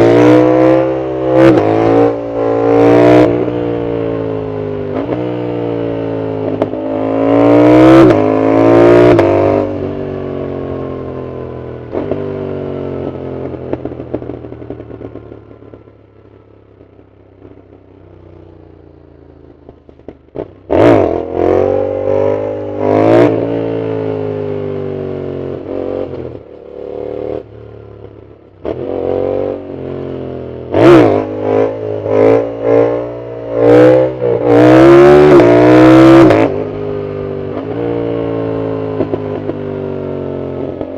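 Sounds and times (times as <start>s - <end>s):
motorcycle engine accelerating: 0.0s - 40.9s
exhaust cracks: 19.4s - 21.0s
sharp engine revs: 30.7s - 36.6s.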